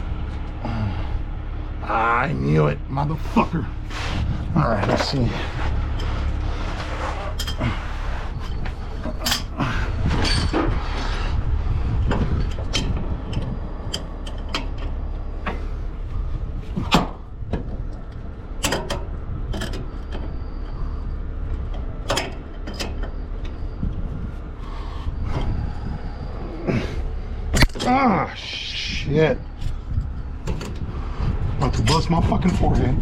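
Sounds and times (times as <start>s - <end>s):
low engine rumble: 0.0s - 33.0s
metal clicks and clanks of tools: 7.3s - 7.7s, 8.5s - 10.7s, 12.1s - 15.6s, 16.8s - 20.3s, 21.5s - 23.6s, 27.5s - 28.0s.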